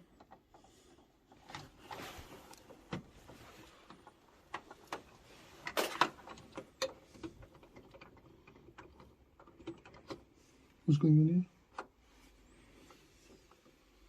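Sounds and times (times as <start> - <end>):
tools and parts clicking and knocking: 0.0 - 1.9, 2.5 - 10.4.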